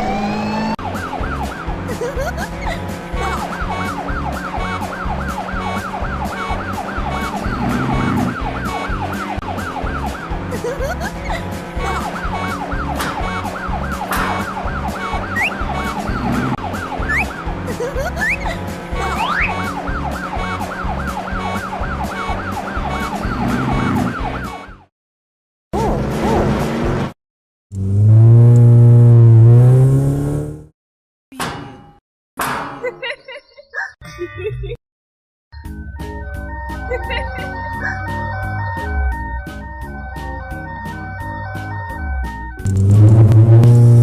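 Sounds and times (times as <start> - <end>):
cartoon siren yelping: 3.2 - 24.8, 36.9 - 39.0.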